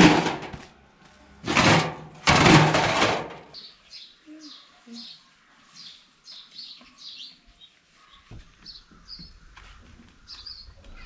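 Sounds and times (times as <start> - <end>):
birds chirping: 3.5 - 11.0.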